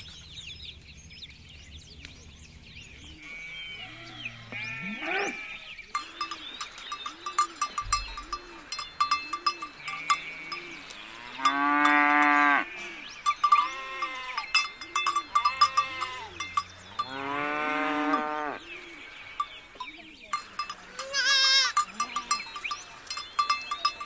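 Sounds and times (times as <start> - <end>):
farm animals bleating: 3.0 - 6.6, 7.2 - 24.0
livestock bells clinking: 5.7 - 24.0.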